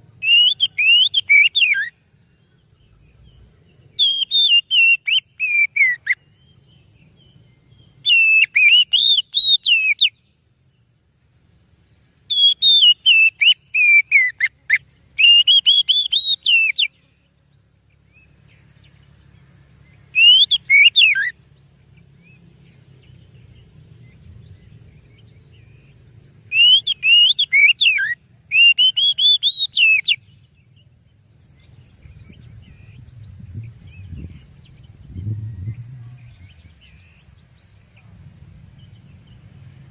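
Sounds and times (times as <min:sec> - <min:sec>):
bird singing whistles: 0:00.2 - 0:02.0, 0:03.9 - 0:10.4, 0:12.2 - 0:17.1, 0:19.6 - 0:22.4, 0:23.2 - 0:38.1
faint low rumble: 0:21.4 - 0:26.5, 0:30.2 - 0:39.9.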